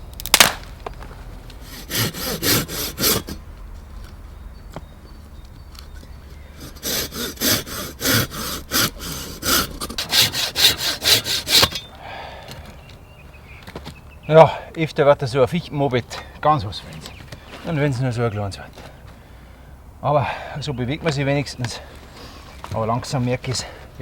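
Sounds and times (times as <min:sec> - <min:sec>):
hand saw cutting wood: 0:01.6 - 0:03.4, 0:06.3 - 0:12.0.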